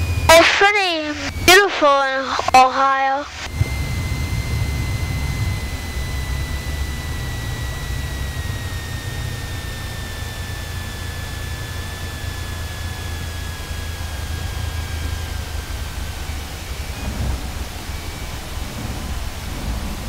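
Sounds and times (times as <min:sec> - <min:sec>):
high whine dropping in pitch: 0:00.0 - 0:20.0
propeller engine drone: 0:00.0 - 0:20.0.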